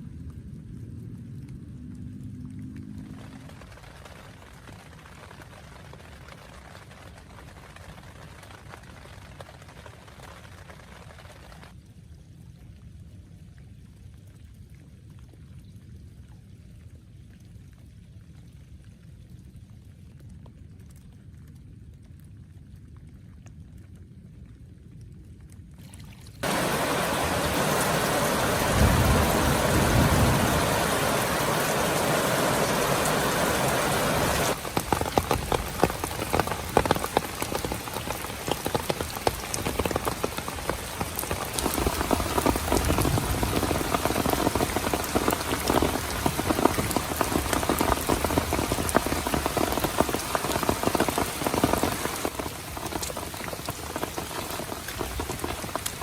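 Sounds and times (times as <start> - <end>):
heavy rain falling: 26.4 - 56.0.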